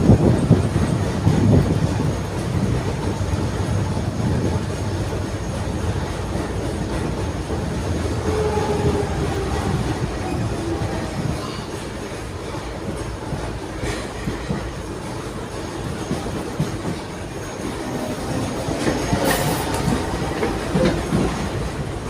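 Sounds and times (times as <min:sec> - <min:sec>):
tram wheels rumbling: 0:00.0 - 0:22.0.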